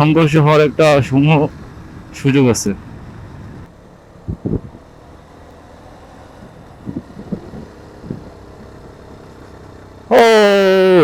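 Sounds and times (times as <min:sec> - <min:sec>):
motorcycle running: 0:00.0 - 0:11.0
wind on microphone: 0:04.2 - 0:04.8, 0:06.8 - 0:08.4.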